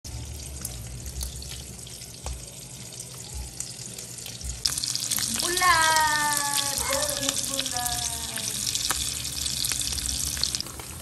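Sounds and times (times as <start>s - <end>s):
hot oil sizzling in a pan: 0.1s - 11.0s.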